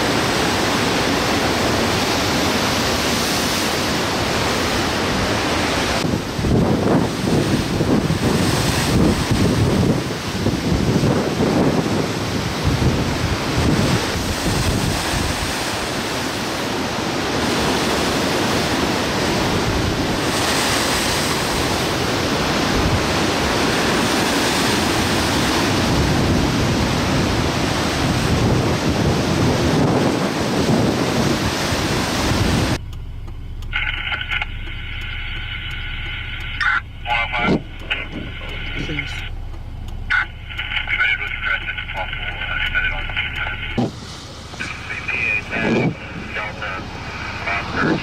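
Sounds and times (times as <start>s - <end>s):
gusting wind on microphone: 0.0s - 32.8s, 35.2s - 48.0s
waves breaking on shore: 0.0s - 32.8s, 33.7s - 39.4s, 40.0s - 48.0s
faint steady tones: 32.8s - 48.0s.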